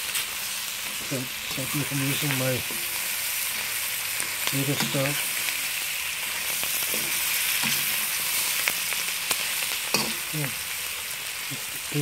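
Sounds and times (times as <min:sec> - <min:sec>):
meat and onion sizzling in wok: 0:00.0 - 0:12.0
metal spoon scraping wok: 0:00.9 - 0:08.7, 0:09.4 - 0:10.3.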